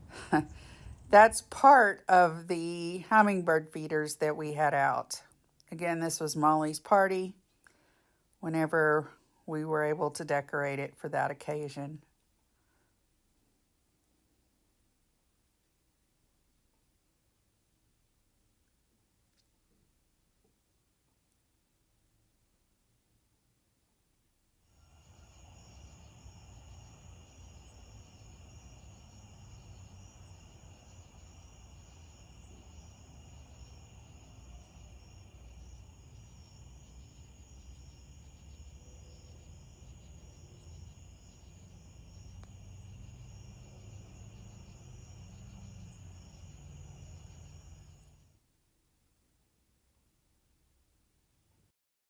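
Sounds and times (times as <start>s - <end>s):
crickets and insects trilling: 24.8s - 48.3s.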